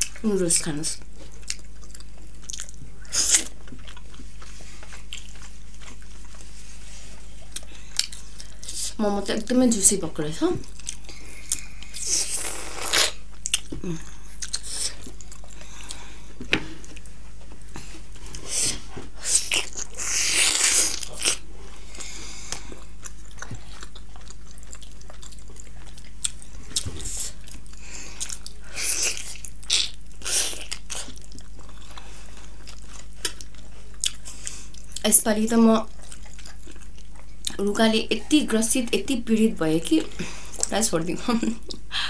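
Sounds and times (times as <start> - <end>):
close chewing with wet smacks: 1.0 - 8.8, 10.6 - 12.2, 13.3 - 16.0, 22.0 - 35.1, 35.8 - 37.6.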